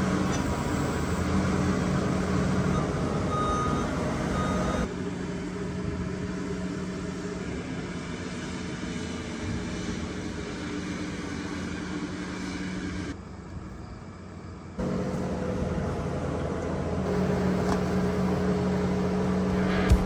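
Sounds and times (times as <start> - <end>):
tractor engine running: 14.8 - 20.0.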